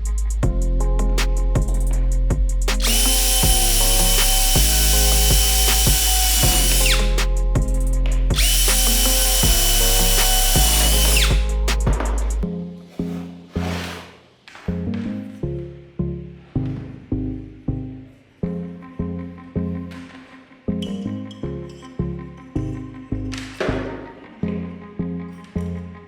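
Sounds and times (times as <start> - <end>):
background music: 0.0 - 26.0
power drill whining: 2.8 - 7.2, 8.4 - 12.3.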